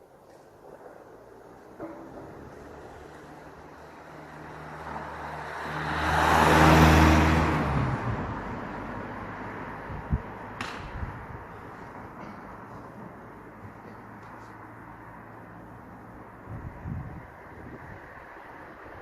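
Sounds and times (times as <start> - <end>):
vehicle passing by: 1.4 - 19.0
sharp knock: 10.6 - 11.1.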